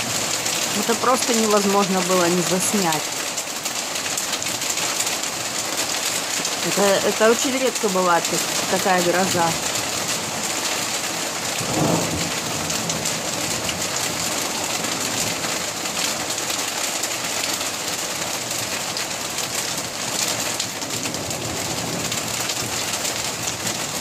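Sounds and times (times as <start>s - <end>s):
heavy rain and hail: 0.0s - 24.0s
thunder rumbling: 11.3s - 15.4s.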